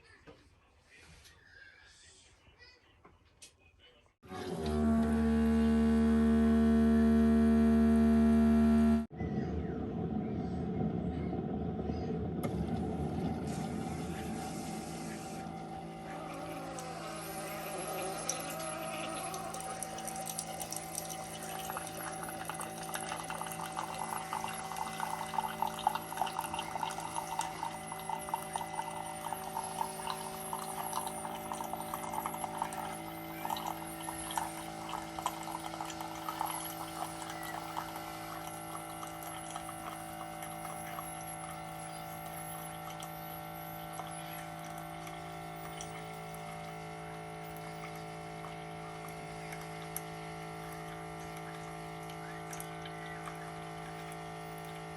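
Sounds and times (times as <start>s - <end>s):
coffee maker humming: 4.2s - 54.9s
coffee trickling into a cup: 12.5s - 54.9s
gurgling: 14.3s - 38.4s.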